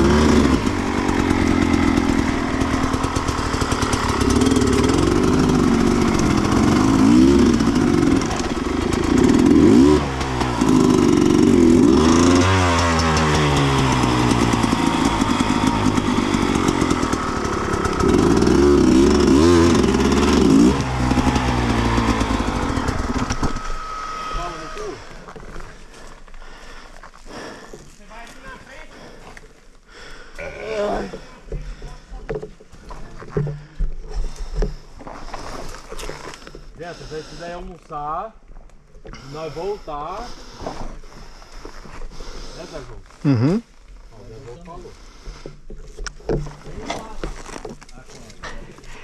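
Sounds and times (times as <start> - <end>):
two-stroke motorcycle revving: 0.0 - 25.6.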